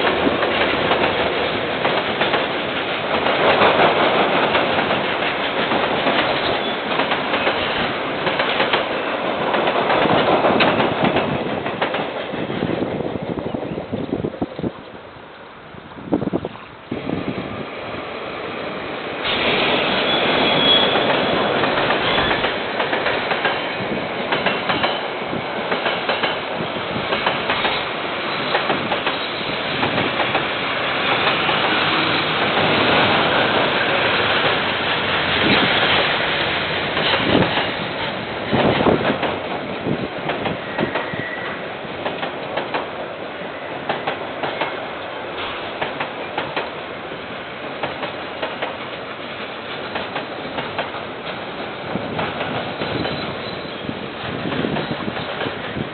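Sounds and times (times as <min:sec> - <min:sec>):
train wheels rumbling on rail: 0:00.0 - 0:55.9
faint wheel squeals: 0:20.0 - 0:21.1, 0:40.6 - 0:41.6, 0:52.9 - 0:53.9.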